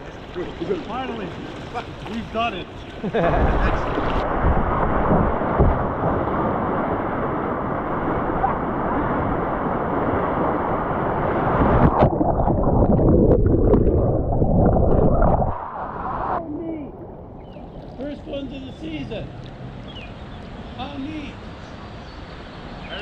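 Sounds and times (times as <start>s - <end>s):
rushing whitewater: 0.0s - 12.0s.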